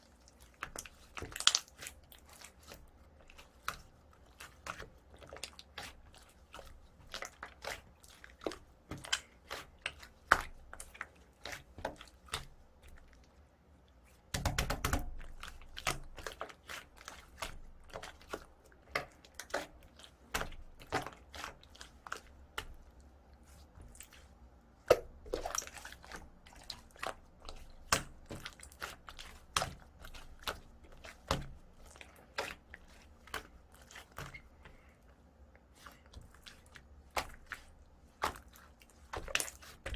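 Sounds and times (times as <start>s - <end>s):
slime crackling: 0.2s - 13.2s, 35.9s - 39.9s.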